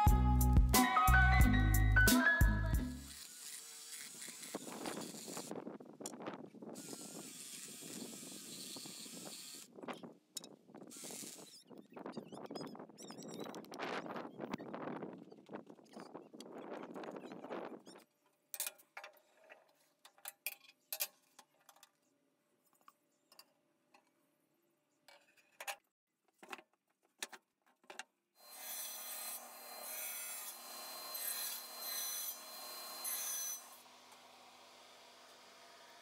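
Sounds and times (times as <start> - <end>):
power tool sanding wood: 3.0 - 5.5, 28.6 - 36.0.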